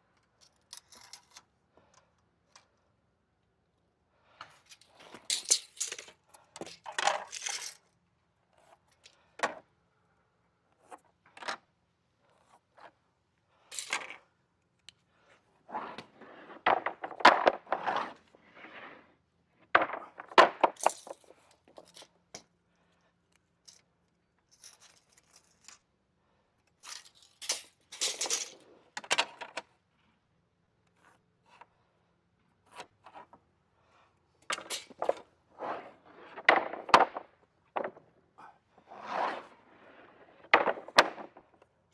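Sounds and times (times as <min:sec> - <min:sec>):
metal tools clattering and scraping: 0:04.7 - 0:06.1, 0:06.8 - 0:07.8, 0:26.8 - 0:28.6.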